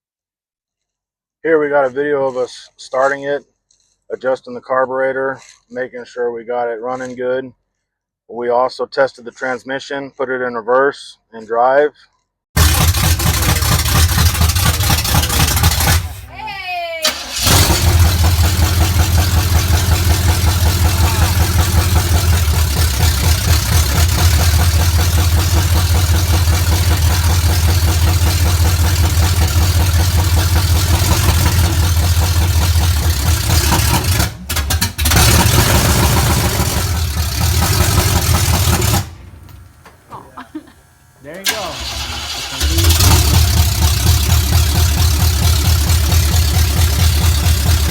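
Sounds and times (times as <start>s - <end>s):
truck engine running: 12.6s - 47.9s.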